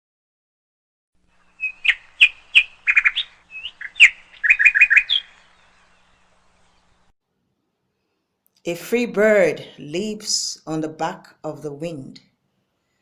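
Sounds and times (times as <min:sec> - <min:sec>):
bird chirping: 0:01.3 - 0:07.1.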